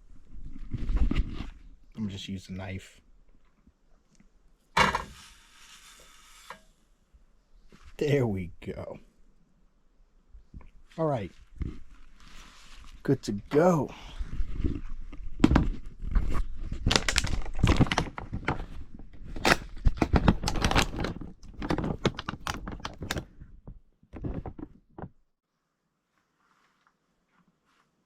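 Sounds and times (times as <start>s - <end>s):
rustling and scraping of packaging: 11.4s - 13.1s, 14.3s - 23.6s.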